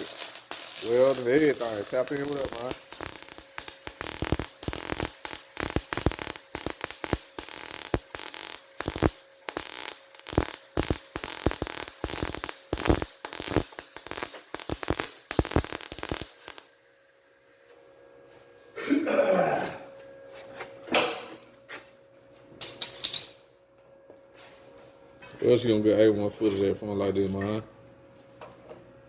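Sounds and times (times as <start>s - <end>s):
welding arc crackling: 0.0s - 17.7s.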